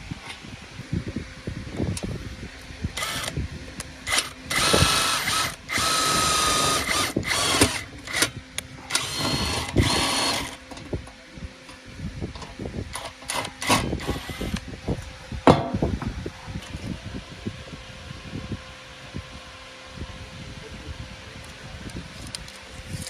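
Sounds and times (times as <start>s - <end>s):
small power tool motor whine: 3.0s - 3.4s, 4.0s - 10.7s, 13.0s - 14.7s.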